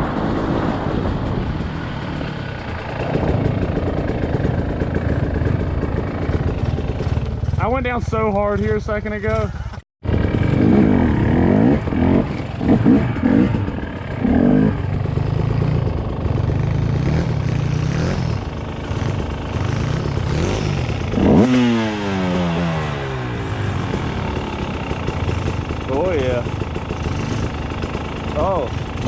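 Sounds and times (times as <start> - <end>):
dirt bike engine revving: 0.0 - 29.0
bike clattering over trail: 2.6 - 10.7, 18.5 - 29.0.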